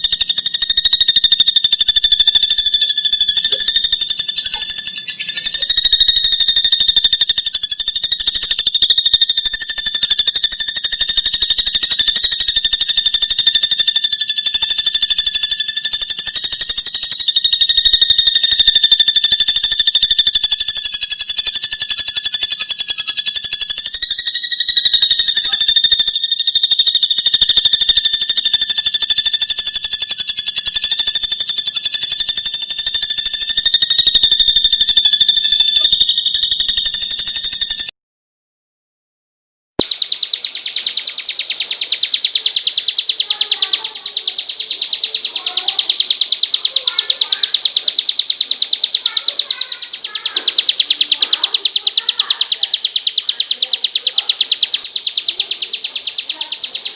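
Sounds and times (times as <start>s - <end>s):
high buzzing animal trill: 0.0s - 37.9s.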